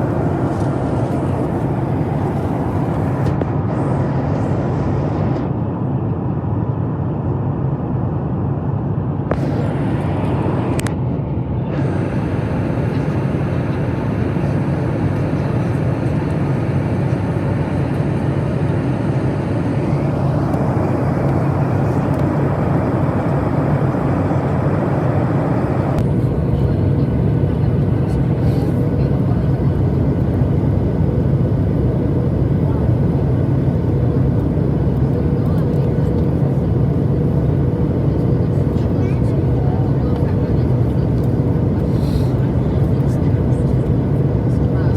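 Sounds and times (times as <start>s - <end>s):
airflow rushing: 0.0s - 5.4s, 9.3s - 15.0s, 16.8s - 26.3s
jet engine rumble: 0.0s - 44.9s.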